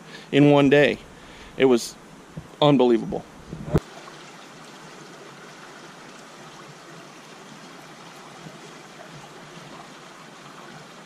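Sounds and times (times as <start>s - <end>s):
river water rushing: 3.2s - 11.0s.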